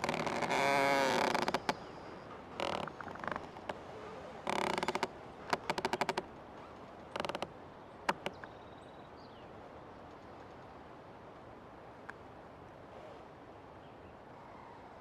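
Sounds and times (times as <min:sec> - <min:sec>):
tree creaking: 0:00.0 - 0:08.5.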